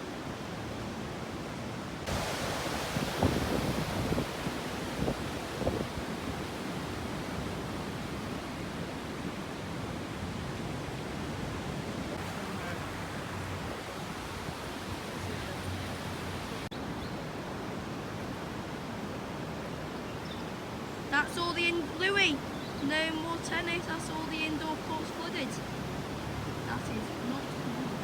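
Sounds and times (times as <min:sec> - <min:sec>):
river floodwater rushing: 0:00.0 - 0:28.0.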